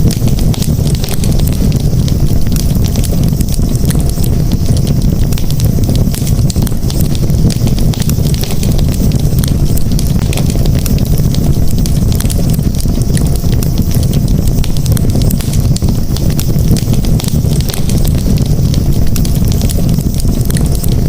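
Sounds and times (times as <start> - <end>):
campfire crackling and popping: 0.0 - 21.0
low rumble: 0.0 - 21.0.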